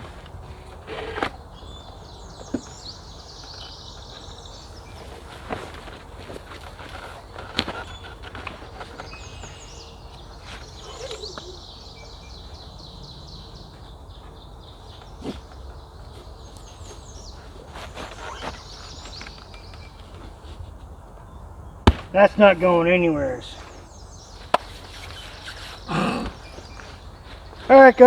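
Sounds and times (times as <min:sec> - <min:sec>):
songbird trilling: 0:07.8 - 0:20.3, 0:21.2 - 0:27.9
sharp knocks: 0:21.8 - 0:22.3.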